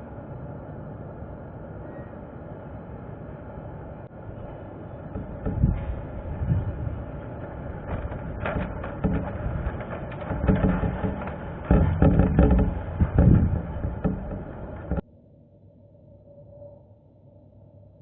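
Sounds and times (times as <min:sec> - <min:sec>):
wind buffeting microphone: 0:04.1 - 0:15.0
small clicks and knocks: 0:05.1 - 0:15.0.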